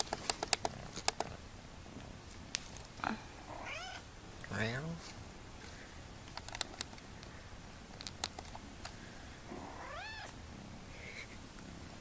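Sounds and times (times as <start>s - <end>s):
sharp clicks: 0.0s - 1.4s, 6.3s - 7.3s, 8.0s - 9.0s
kitten meowing: 3.6s - 4.0s, 9.6s - 10.4s.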